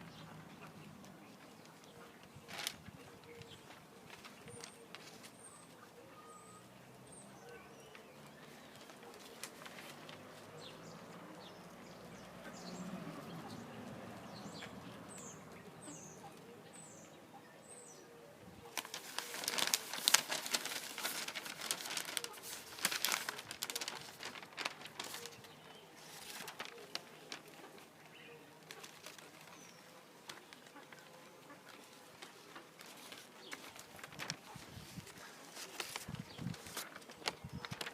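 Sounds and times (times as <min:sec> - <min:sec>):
hanging prints flapping and rattling: 0:01.4 - 0:05.4, 0:18.7 - 0:31.1, 0:31.7 - 0:37.9.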